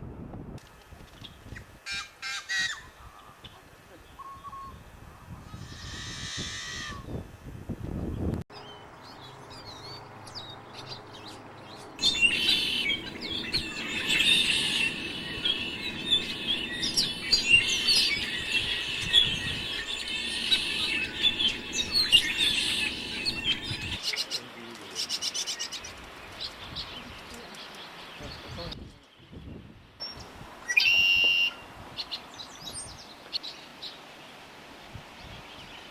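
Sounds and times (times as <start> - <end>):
songbirds chirping: 8.2 - 30.2
fast dry bird chatter: 11.9 - 24.0.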